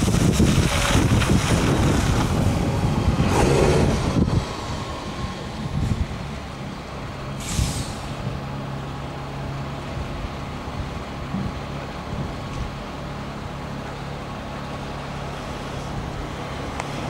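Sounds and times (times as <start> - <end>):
tractor engine running: 0.0 - 17.0
air brake hiss: 7.4 - 8.2.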